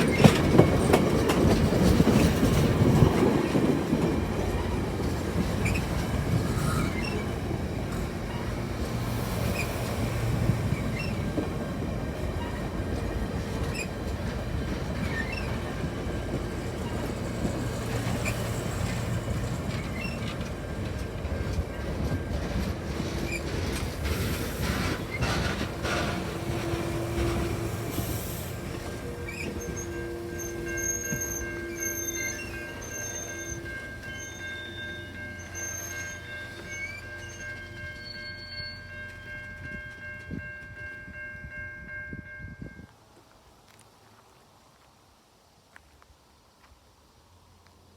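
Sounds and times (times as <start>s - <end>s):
wheels clicking on tracks: 0.0s - 41.1s
train rumbling past: 0.0s - 43.0s
wheels squealing: 4.4s - 11.4s.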